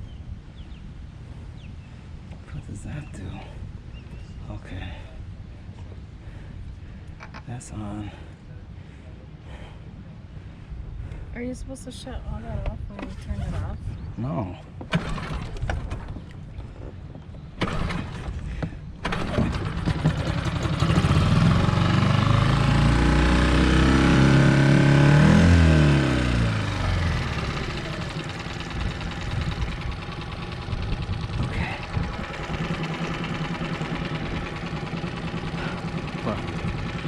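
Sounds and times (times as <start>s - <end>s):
small outboard motor revving: 14.9s - 16.9s, 17.6s - 37.0s.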